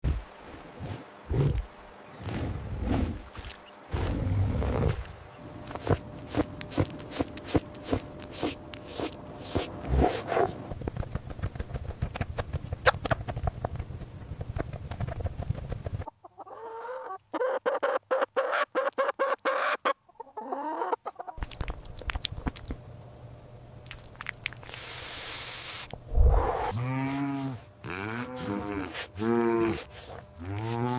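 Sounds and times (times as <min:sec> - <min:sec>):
farmyard ambience: 0:15.6 - 0:30.9
chickens clucking: 0:16.0 - 0:21.4.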